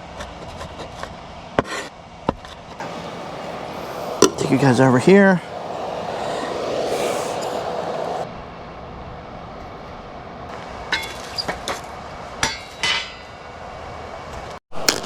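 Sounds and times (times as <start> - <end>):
background hiss: 2.8 - 8.2.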